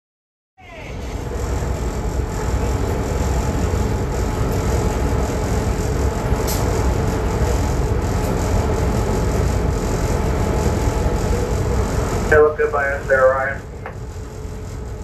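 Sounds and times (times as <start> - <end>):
train rumble with rail noise: 0.6 - 15.0.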